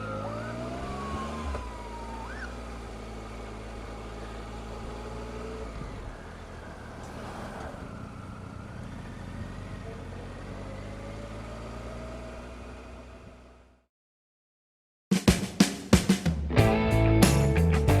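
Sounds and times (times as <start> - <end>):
road noise: 0.0 - 13.9
motorcycle engine running: 7.9 - 11.6.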